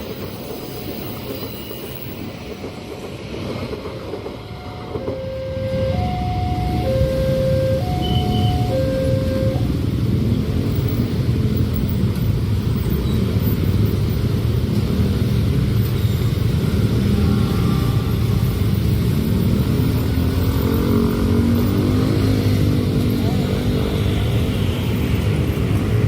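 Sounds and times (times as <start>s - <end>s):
diesel train passing: 0.0s - 26.0s.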